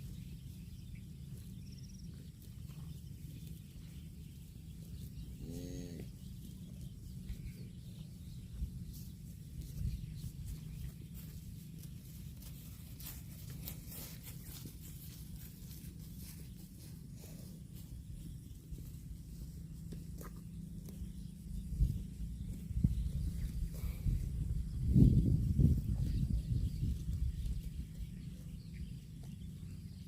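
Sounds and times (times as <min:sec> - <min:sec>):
steady low rumble: 0:00.0 - 0:30.0
grass being torn and chewed: 0:18.5 - 0:24.0.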